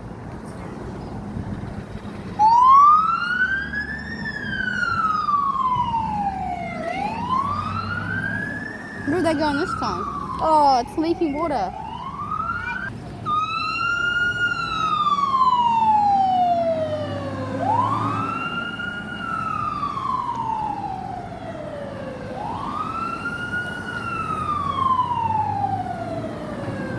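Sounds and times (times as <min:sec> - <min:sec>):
fire siren wailing: 0:02.3 - 0:26.9.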